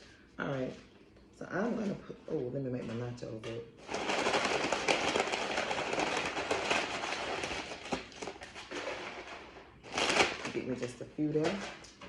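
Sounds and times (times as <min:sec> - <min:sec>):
tortilla chips rustling: 0:02.8 - 0:12.0.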